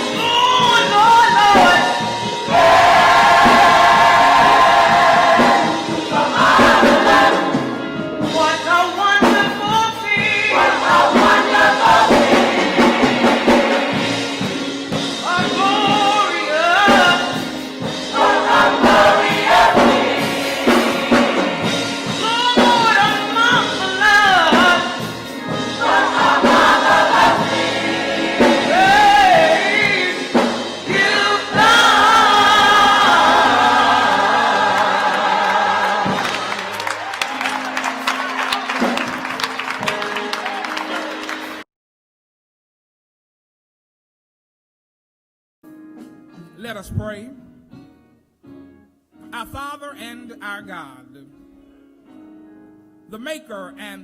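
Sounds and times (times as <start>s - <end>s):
choir singing gospel: 0.0s - 41.6s.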